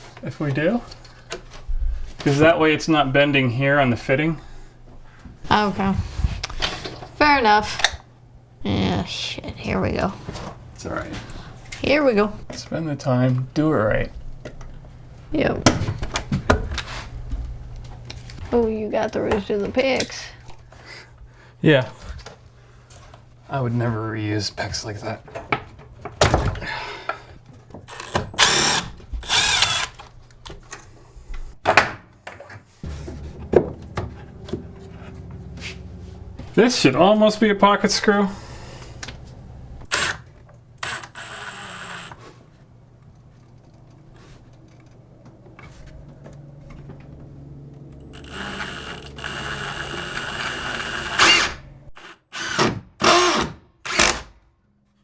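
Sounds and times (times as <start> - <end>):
power drill driving screws: 27.9 - 30.1, 39.9 - 42.3, 48.0 - 54.3.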